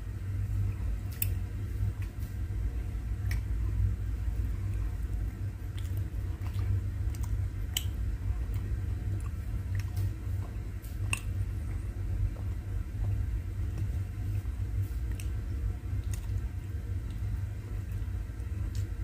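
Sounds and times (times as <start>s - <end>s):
low hum: 0.0s - 19.0s
person chewing sticky food: 4.5s - 19.0s.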